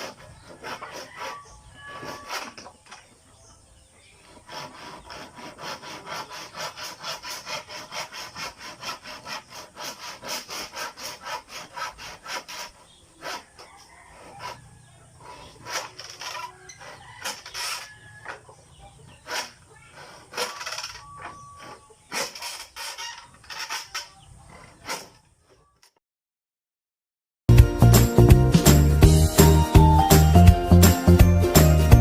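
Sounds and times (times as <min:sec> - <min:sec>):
hand saw cutting wood: 0:00.0 - 0:02.8, 0:04.2 - 0:18.2, 0:19.1 - 0:25.2.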